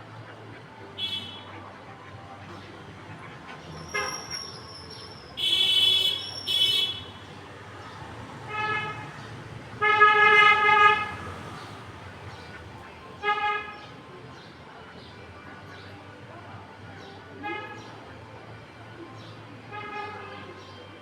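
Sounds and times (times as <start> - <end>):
vehicle horns honking: 1.0 - 1.6, 3.8 - 7.3, 8.5 - 9.2, 9.8 - 11.3, 13.2 - 13.8.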